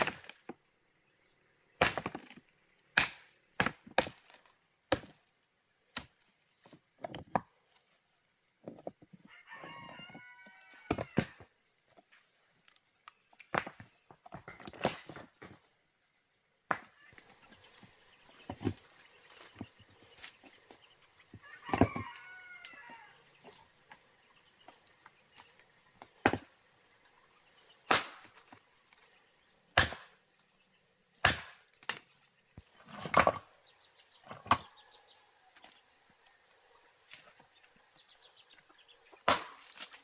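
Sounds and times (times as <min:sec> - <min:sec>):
rooster crowing: 0:09.3 - 0:11.4, 0:21.4 - 0:23.2.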